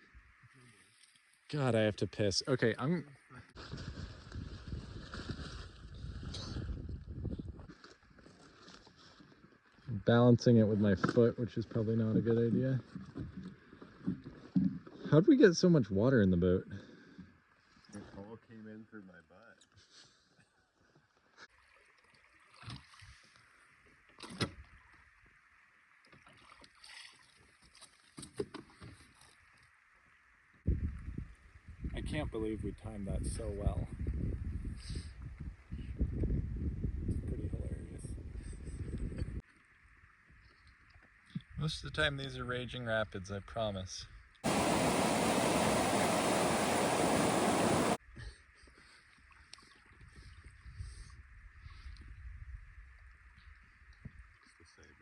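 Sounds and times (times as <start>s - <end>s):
faint water noise: 21.0s - 31.7s, 44.4s - 55.0s
faint water wash: 44.4s - 48.0s
rushing tidal rapids: 44.4s - 48.0s.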